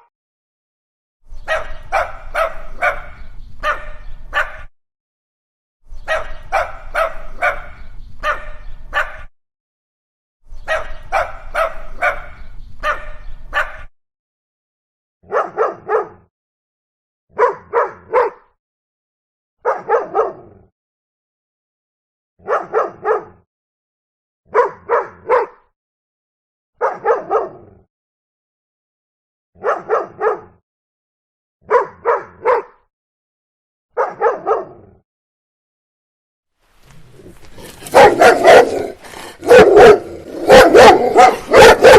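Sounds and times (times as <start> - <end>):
dogs barking: 1.5 - 4.7, 6.1 - 9.3, 10.7 - 13.9, 15.3 - 16.3, 17.4 - 18.5, 19.6 - 20.5, 22.4 - 23.4, 24.5 - 25.7, 26.8 - 27.6, 29.6 - 30.6, 31.7 - 32.8, 34.0 - 34.8, 36.9 - 41.9.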